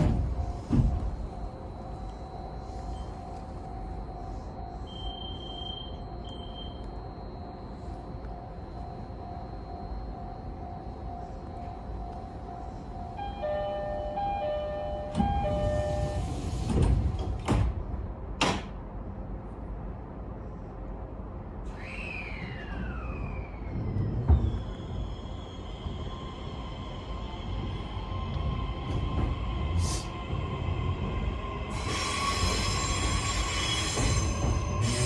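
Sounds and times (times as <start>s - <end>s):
sliding doors closing with knocks: 0.0s - 1.2s, 15.1s - 18.8s
wheels hissing on rails: 21.6s - 35.0s
train traction motors whining: 21.8s - 35.0s.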